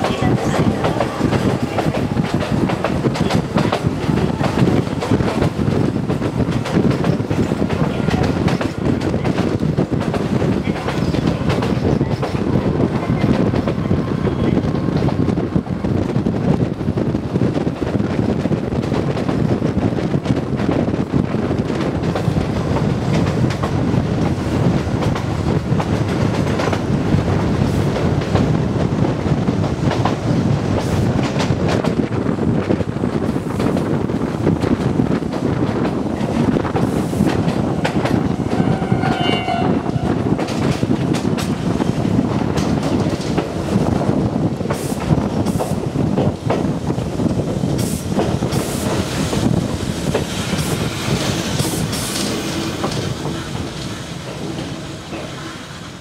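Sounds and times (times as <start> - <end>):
train rumbling: 0.0 - 56.0
short high train horn: 37.7 - 40.4.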